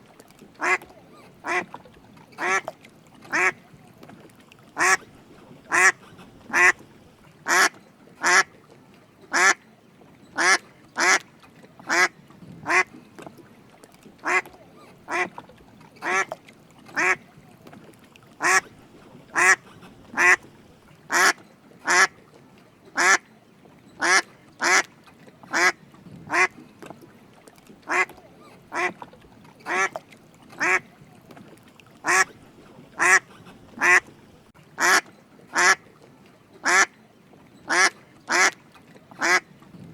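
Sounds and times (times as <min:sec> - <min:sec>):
mallard quacking: 0:00.6 - 0:01.8, 0:02.4 - 0:02.7, 0:03.3 - 0:03.6, 0:04.8 - 0:05.1, 0:05.7 - 0:06.9, 0:07.5 - 0:08.5, 0:09.3 - 0:09.6, 0:10.4 - 0:11.2, 0:11.9 - 0:12.9, 0:14.2 - 0:15.4, 0:16.0 - 0:16.4, 0:17.0 - 0:17.2, 0:18.4 - 0:18.7, 0:19.3 - 0:20.5, 0:21.1 - 0:22.2, 0:23.0 - 0:23.2, 0:24.0 - 0:24.9, 0:25.5 - 0:26.6, 0:27.9 - 0:29.0, 0:29.6 - 0:30.0, 0:30.6 - 0:30.9, 0:32.0 - 0:32.4, 0:33.0 - 0:34.1, 0:34.8 - 0:35.8, 0:36.6 - 0:36.9, 0:37.7 - 0:38.6, 0:39.2 - 0:39.4.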